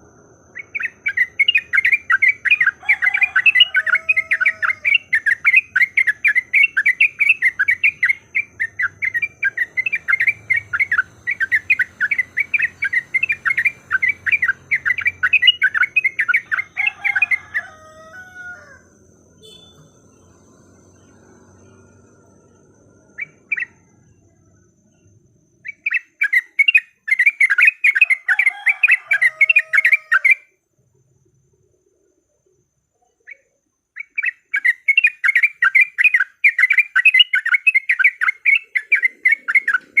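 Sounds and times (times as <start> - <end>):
bird chattering sharp notes: 34.0 - 40.0.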